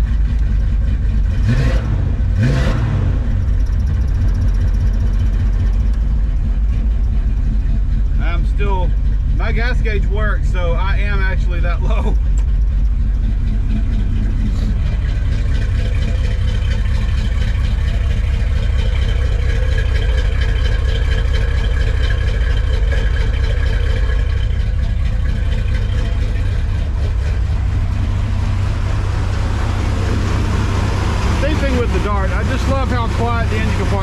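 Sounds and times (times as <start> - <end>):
pickup engine idling: 0.0 - 34.0.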